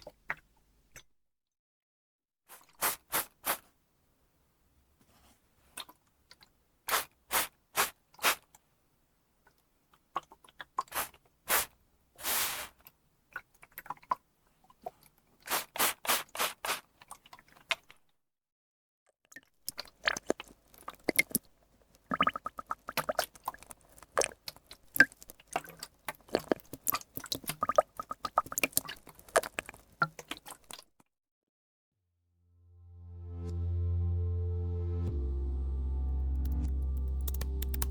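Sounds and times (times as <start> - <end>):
water hissing bursts: 10.9 - 12.8
water crackling and popping: 19.4 - 31.0.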